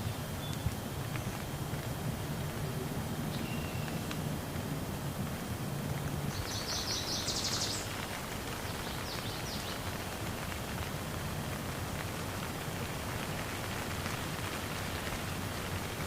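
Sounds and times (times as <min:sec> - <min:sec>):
steady rain falling: 0:00.0 - 0:16.0
bird singing a fast trill: 0:03.3 - 0:04.0, 0:06.3 - 0:07.9.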